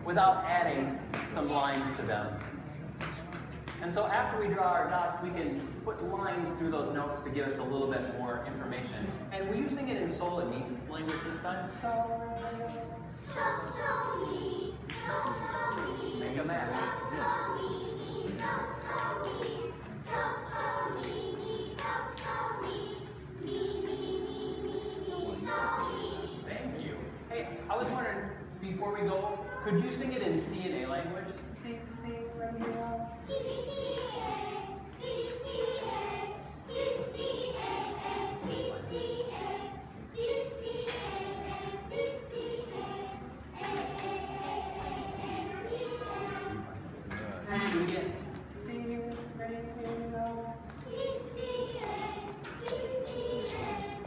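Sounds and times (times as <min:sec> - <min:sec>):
children singing together: 0:13.0 - 0:26.5, 0:33.2 - 0:47.0, 0:49.8 - 0:54.0.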